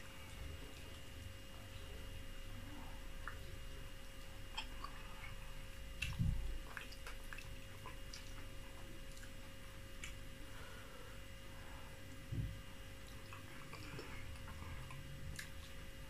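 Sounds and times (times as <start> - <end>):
faint steady hum: 0.0 - 16.0
wet chewing: 4.1 - 10.2
soft low thump: 12.3 - 12.6.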